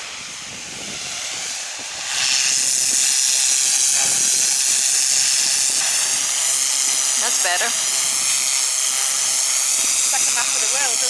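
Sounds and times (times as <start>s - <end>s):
pressure washer spraying hull: 0.0s - 11.0s.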